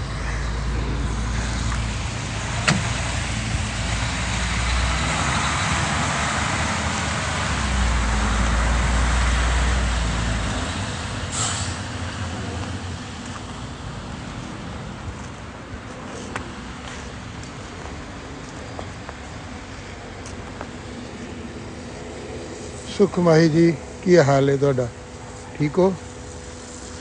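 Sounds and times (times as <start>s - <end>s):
heavy vehicle engine rumble: 0.0s - 27.0s
air brakes hiss: 11.3s - 11.9s.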